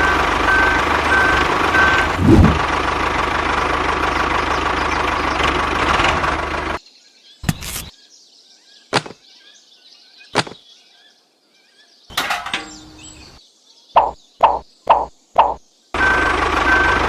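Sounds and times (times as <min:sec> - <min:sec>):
faint bird-like chirps: 0:07.0 - 0:15.9
scraping rattle: 0:12.1 - 0:13.1.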